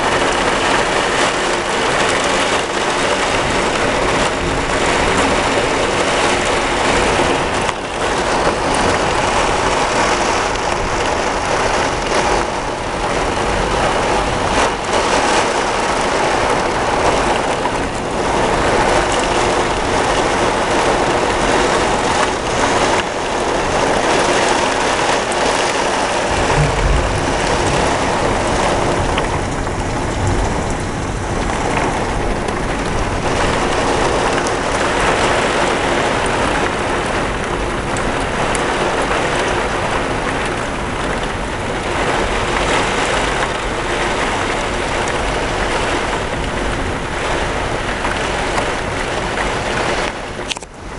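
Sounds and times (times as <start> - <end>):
heavy rain pouring: 0.0 - 50.9
low thunder rumble: 23.6 - 41.3.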